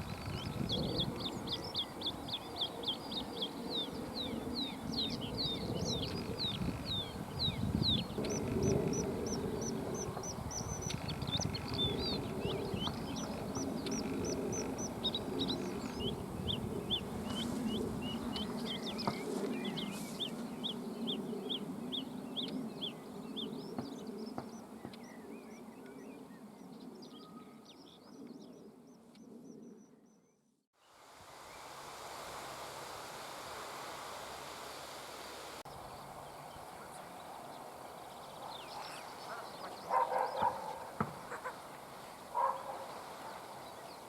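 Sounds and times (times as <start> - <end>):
bird singing high chirps: 0.0 - 26.4.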